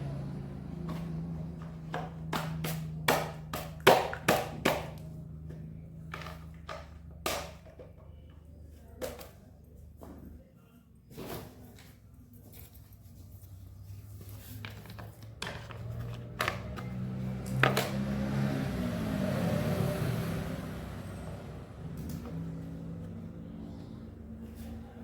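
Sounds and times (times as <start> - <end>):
scooter engine revving: 0.0 - 6.6, 15.7 - 25.0.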